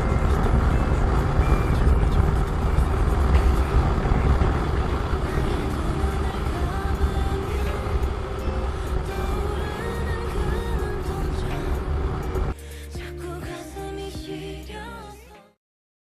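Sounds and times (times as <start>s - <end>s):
motorcycle engine running: 0.0s - 12.6s
wind rumble on microphone: 0.0s - 12.6s.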